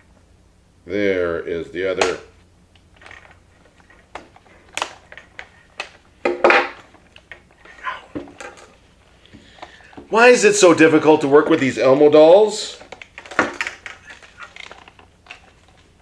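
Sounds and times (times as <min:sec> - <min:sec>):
plastic parts clicking and creaking: 0:02.8 - 0:07.4, 0:12.7 - 0:16.0.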